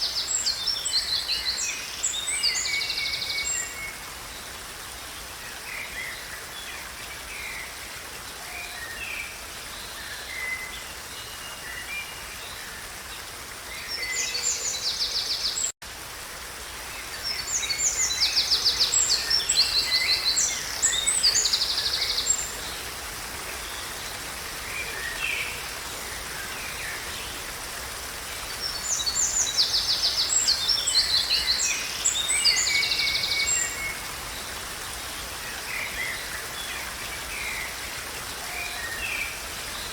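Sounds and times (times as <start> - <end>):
wild birds singing and calling: 8.4 - 15.7, 17.0 - 39.9.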